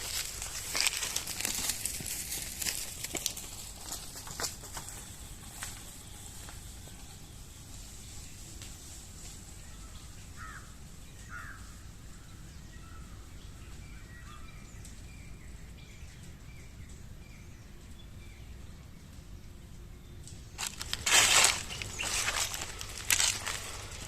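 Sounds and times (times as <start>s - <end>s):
loud rustling crunching: 0.0s - 7.0s, 20.6s - 24.0s.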